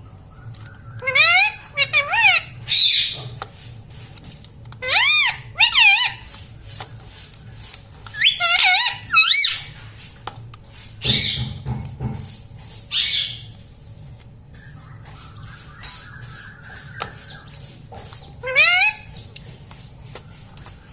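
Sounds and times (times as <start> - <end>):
parakeet squawks: 0.3 - 3.4, 4.8 - 6.3, 8.1 - 9.7, 11.0 - 11.6, 12.9 - 13.5, 14.7 - 19.2
parakeet squeaky calls: 0.7 - 3.2, 4.8 - 6.3, 8.1 - 9.7, 11.0 - 11.6, 12.9 - 13.5, 14.6 - 19.3.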